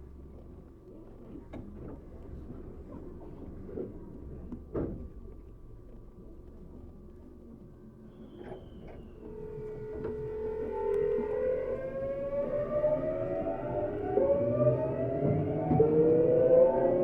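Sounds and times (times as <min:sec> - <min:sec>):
train motor whine rising: 0:09.2 - 0:17.0.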